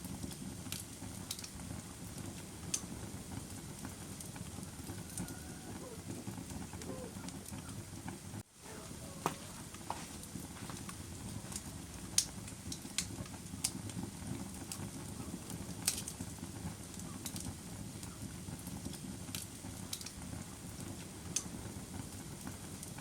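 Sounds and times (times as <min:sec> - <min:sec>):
campfire rumble: 0:00.0 - 0:23.0
wood crackling and popping: 0:00.0 - 0:23.0.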